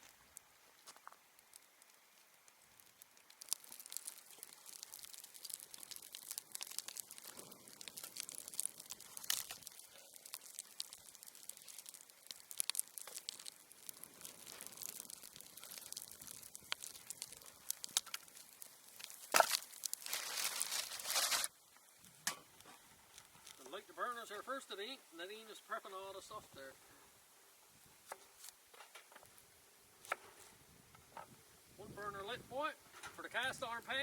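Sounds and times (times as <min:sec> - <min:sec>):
plastic packaging rustling: 0:02.8 - 0:21.6.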